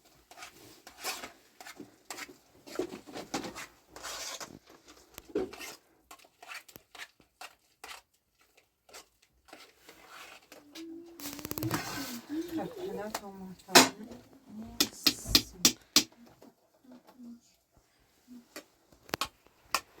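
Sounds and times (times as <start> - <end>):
objects being handled: 0.0 - 20.0.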